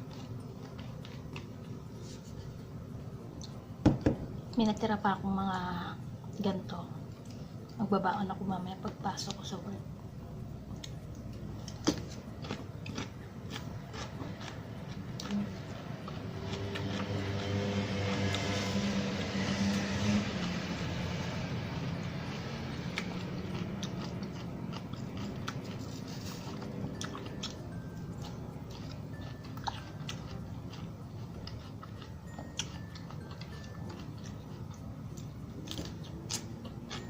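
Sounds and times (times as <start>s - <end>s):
chewing crunchy salad: 0.0s - 2.6s, 10.7s - 37.0s.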